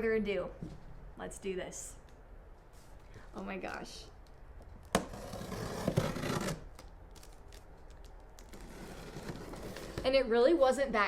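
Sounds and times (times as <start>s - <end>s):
cardboard scraping and rubbing: 4.9s - 7.6s, 8.4s - 10.3s.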